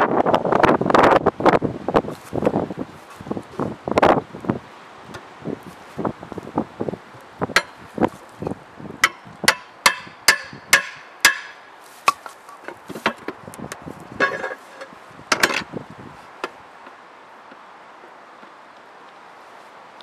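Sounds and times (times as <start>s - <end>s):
hammer blows with metallic ring: 9.0s - 11.6s.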